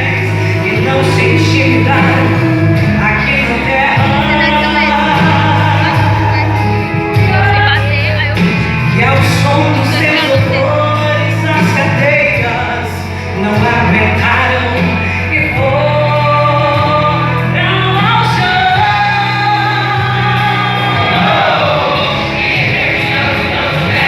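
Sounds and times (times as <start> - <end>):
instrumental accompaniment: 0.0 - 24.0
steady bass notes: 0.0 - 24.0
group singing gospel song: 8.6 - 24.0.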